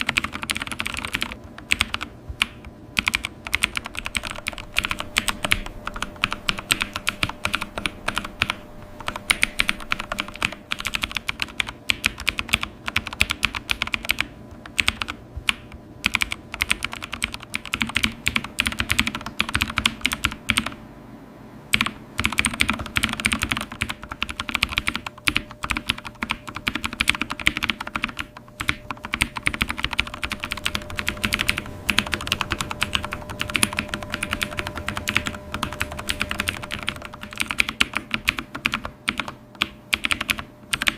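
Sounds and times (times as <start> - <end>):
typing on computer keyboard: 0.0 - 20.8, 21.7 - 40.9.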